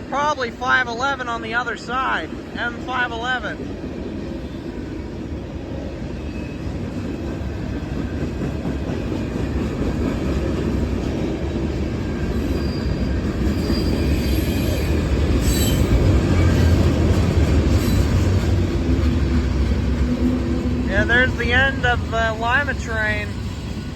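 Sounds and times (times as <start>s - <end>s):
freight train rumbling past: 0.0s - 23.9s
train wheel squeals: 6.1s - 7.0s, 12.0s - 16.8s, 17.7s - 18.4s.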